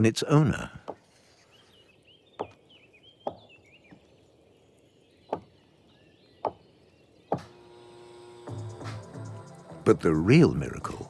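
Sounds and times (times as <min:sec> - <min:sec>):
woodpecker pecking bark: 0:02.4 - 0:04.1, 0:05.3 - 0:05.6, 0:06.4 - 0:06.7, 0:07.3 - 0:09.0.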